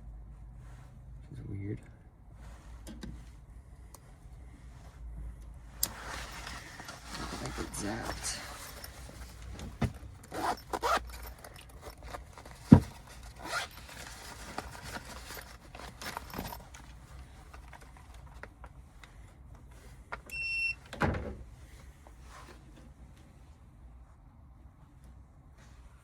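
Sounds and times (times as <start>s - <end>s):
rustling: 5.8s - 18.4s
tools and wires clicking and scraping: 5.8s - 18.8s.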